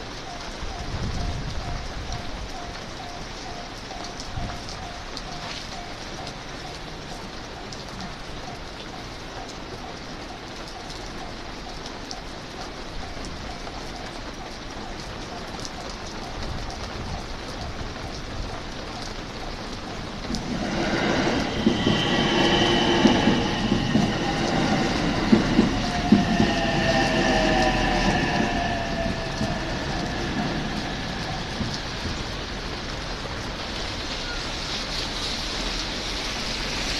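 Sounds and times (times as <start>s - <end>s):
electric train slowing to a stop: 0.0s - 17.4s, 18.0s - 36.9s.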